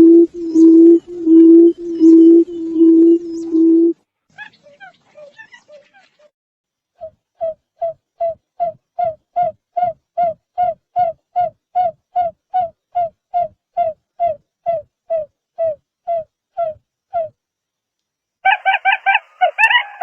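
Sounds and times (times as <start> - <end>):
buttonquail low hooting call: 0.0 - 6.0, 18.5 - 20.0.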